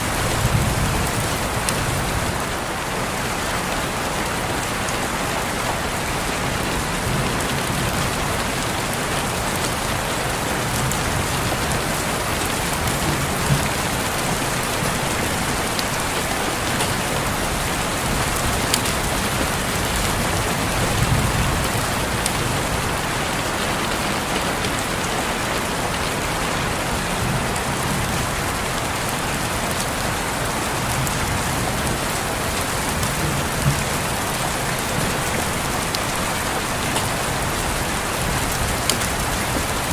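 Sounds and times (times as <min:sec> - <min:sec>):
rain on a window: 0:00.0 - 0:39.9
sharp raindrop taps: 0:09.2 - 0:22.6, 0:32.6 - 0:39.9.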